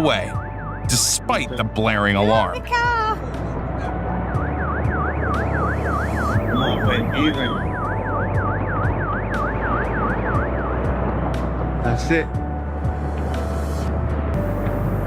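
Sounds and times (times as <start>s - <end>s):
car alarm wailing: 2.8s - 11.1s.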